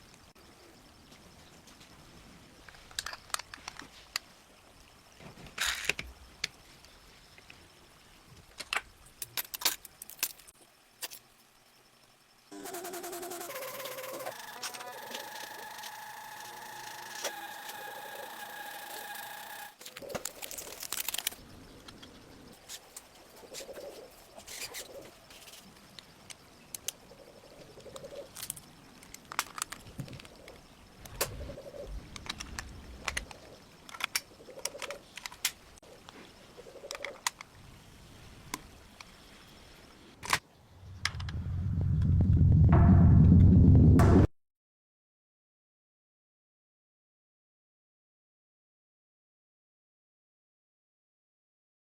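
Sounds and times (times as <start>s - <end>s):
small parts clicking and tapping: 8.5s - 11.3s, 32.1s - 35.6s.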